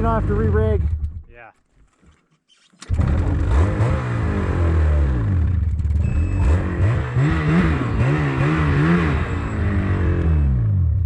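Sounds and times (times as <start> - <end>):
petrol engine revving: 2.8 - 11.0.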